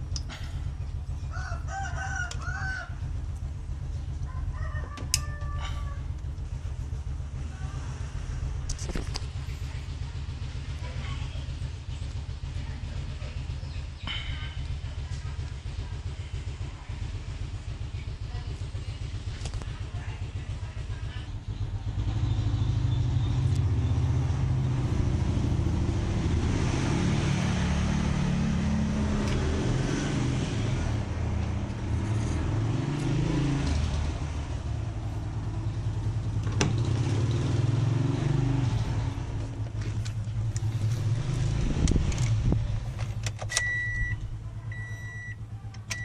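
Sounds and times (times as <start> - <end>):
car engine revving: 21.8 - 45.2.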